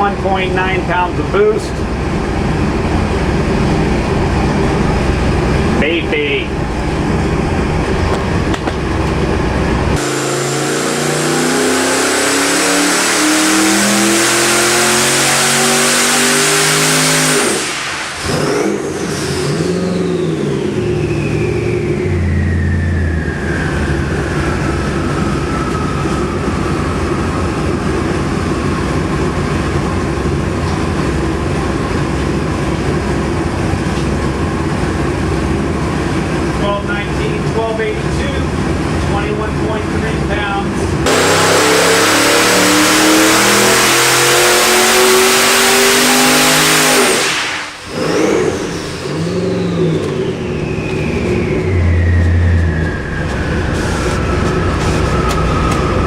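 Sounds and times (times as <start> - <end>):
engine revving at full throttle: 0.0 - 30.4, 34.4 - 56.0
turbo whine: 0.0 - 56.0.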